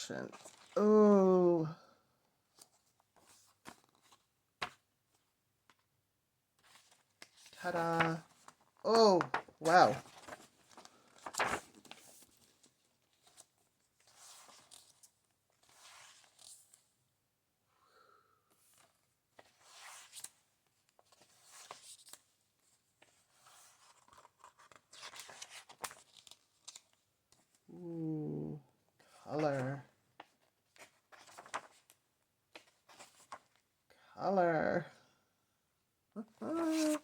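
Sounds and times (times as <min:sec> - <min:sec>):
book pages turning: 0:00.3 - 0:00.8, 0:02.5 - 0:04.9, 0:06.6 - 0:16.9, 0:18.6 - 0:22.3, 0:23.0 - 0:27.6, 0:29.3 - 0:33.6, 0:36.4 - 0:37.0.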